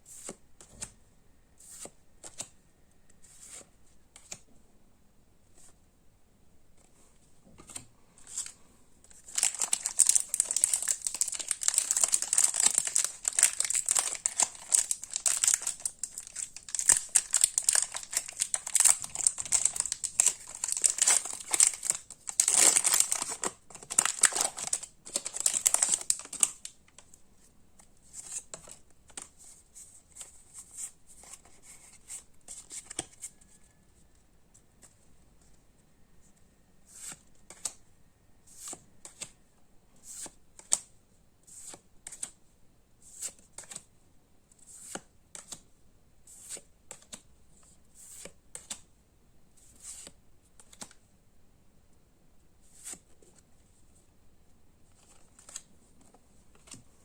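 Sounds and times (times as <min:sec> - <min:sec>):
card packaging crinkling and tearing: 0:09.1 - 0:26.8.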